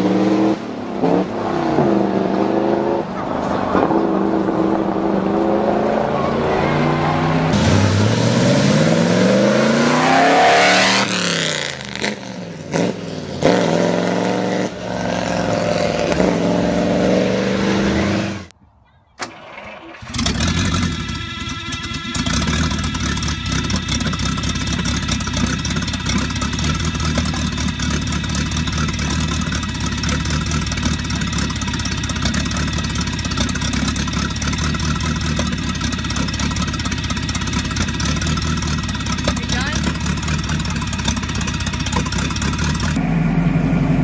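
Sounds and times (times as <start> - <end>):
engine running on test stand: 19.9 - 44.0.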